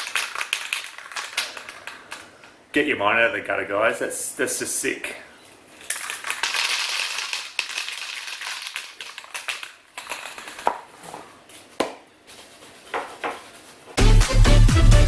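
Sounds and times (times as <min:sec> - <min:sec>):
music with heavy beat: 0:14.0 - 0:15.0.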